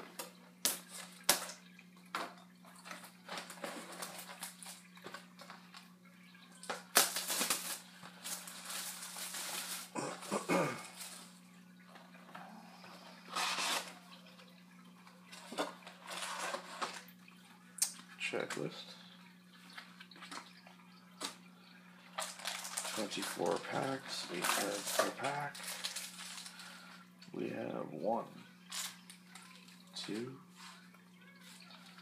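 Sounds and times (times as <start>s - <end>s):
plastic shrink wrap crinkling: 2.8s - 5.9s, 6.6s - 11.3s, 13.3s - 14.1s, 22.1s - 27.1s, 28.6s - 29.9s.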